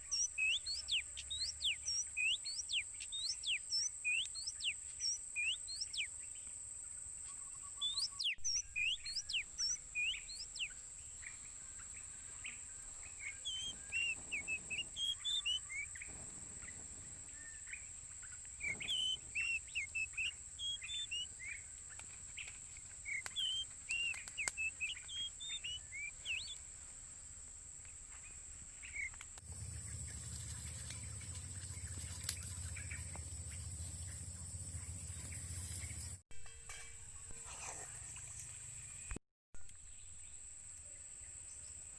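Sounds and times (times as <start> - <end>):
small birds chirping: 0.0 - 36.2
low rumble with hiss: 29.4 - 36.2.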